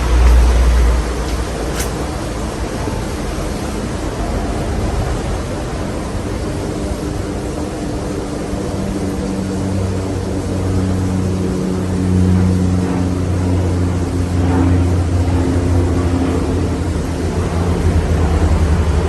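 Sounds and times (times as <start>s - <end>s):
rush of air from fan blades: 1.6s - 2.4s.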